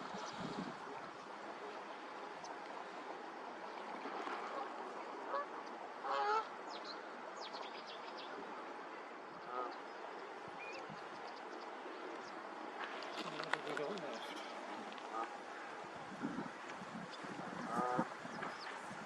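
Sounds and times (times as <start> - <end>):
wind and water hiss: 0.0 - 19.0
waterbirds honking: 4.0 - 7.1, 8.4 - 18.8.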